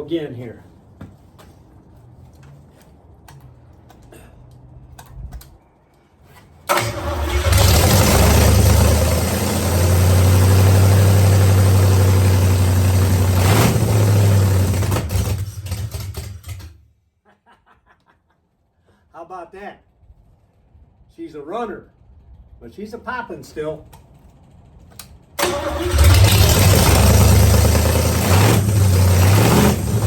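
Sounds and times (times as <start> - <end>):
engine running and popping: 6.7 - 16.8, 24.3 - 30.0.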